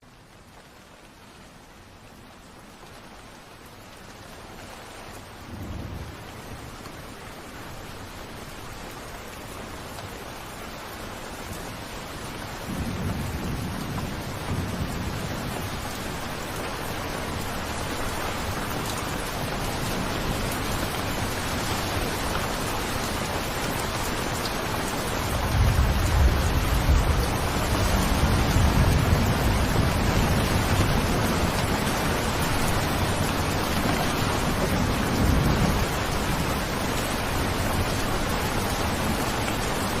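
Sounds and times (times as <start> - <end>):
heavy rain falling: 0.1 - 40.0
low rumble of thunder: 5.4 - 6.7, 12.6 - 16.2, 25.2 - 39.3.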